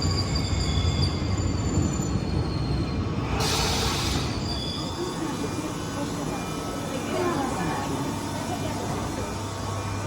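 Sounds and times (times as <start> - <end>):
high wheel squeals: 0.0 - 5.3.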